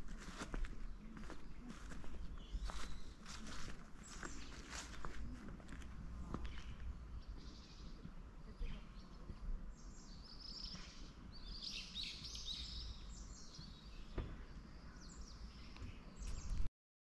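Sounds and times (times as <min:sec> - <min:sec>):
birds chirping: 0:00.0 - 0:16.7.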